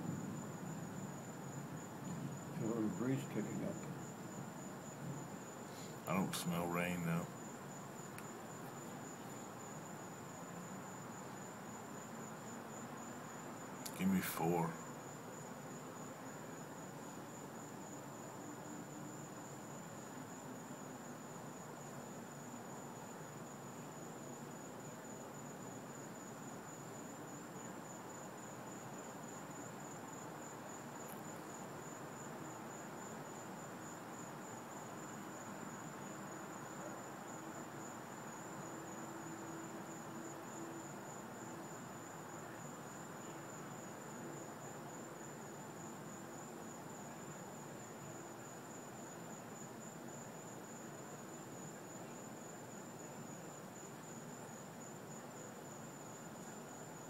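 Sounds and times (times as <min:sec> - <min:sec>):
crickets trilling: 0:00.0 - 0:57.0
faint hiss: 0:00.0 - 0:57.0.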